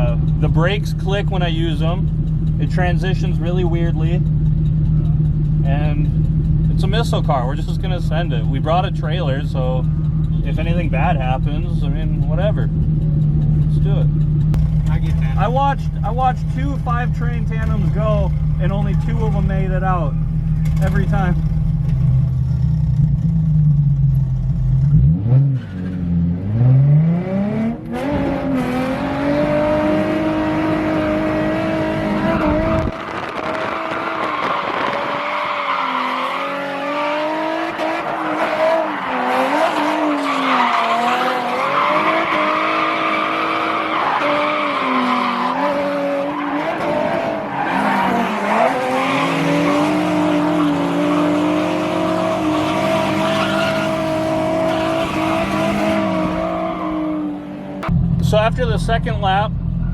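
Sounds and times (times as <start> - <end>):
car engine revving hard: 24.8 - 57.9
tyres squealing: 37.7 - 57.3.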